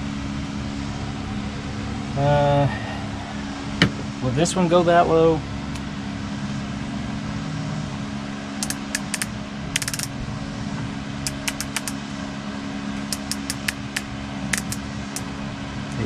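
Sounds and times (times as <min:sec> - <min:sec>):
low hum: 0:00.0 - 0:16.0
torque wrench handle clicking: 0:08.6 - 0:10.1, 0:11.2 - 0:12.0, 0:13.0 - 0:15.3.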